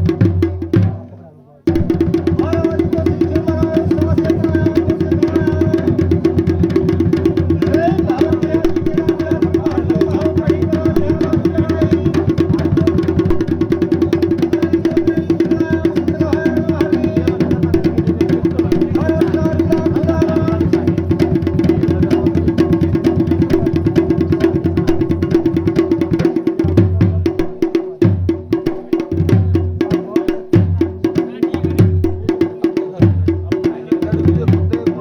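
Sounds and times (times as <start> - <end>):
fast drumming: 0.0 - 35.0.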